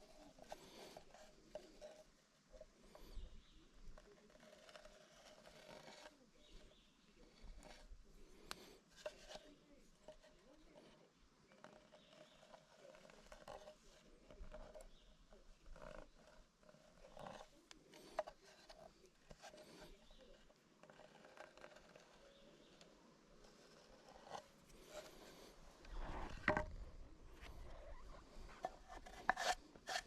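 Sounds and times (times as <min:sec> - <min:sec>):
light taps and rubbing on wood: 0:23.5 - 0:26.8.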